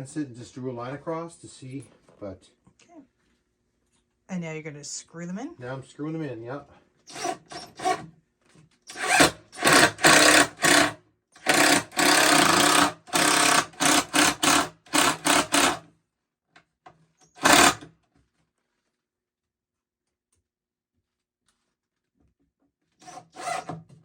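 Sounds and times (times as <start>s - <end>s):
cordless drill driving screws: 7.1s - 8.1s, 8.9s - 15.8s, 17.3s - 17.9s, 23.0s - 23.8s.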